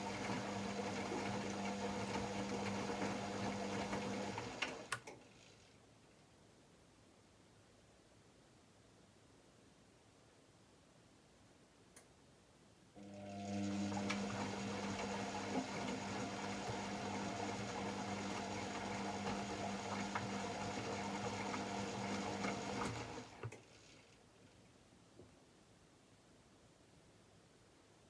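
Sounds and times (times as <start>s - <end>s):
washing machine humming: 0.0s - 4.9s, 13.0s - 23.6s.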